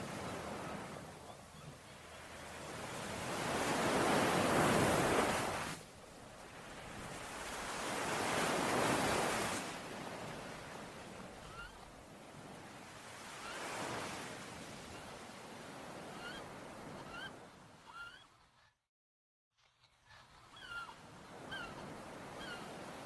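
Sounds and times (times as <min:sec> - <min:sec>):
ocean waves breaking: 0:00.0 - 0:17.5.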